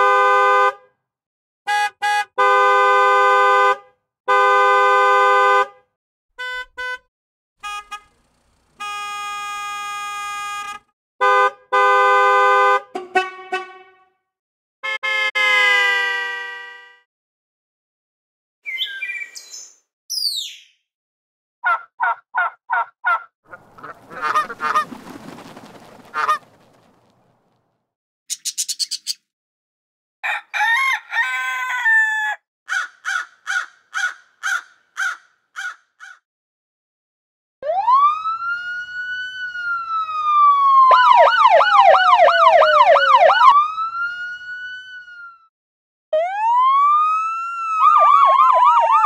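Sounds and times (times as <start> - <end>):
honking or beeping pulses: 6.4 - 10.9
quick high chirps: 28.3 - 29.3
siren wailing: 37.6 - 45.5, 46.1 - 49.0
siren yelp warble: 37.6 - 45.5, 46.2 - 49.0.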